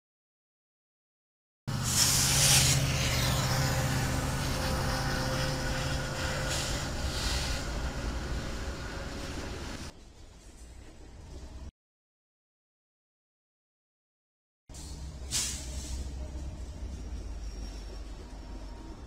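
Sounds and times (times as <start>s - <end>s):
diesel locomotive engines droning: 1.7s - 11.7s, 14.7s - 19.0s
distant freight train: 1.7s - 11.7s, 14.7s - 19.0s
train rolling noise: 1.7s - 11.7s, 14.8s - 19.0s.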